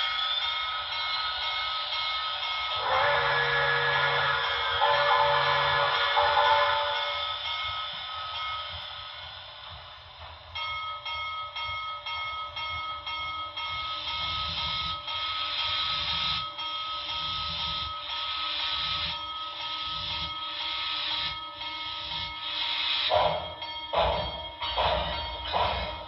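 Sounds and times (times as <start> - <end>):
steam whistle through small speaker: 2.8 - 7.3.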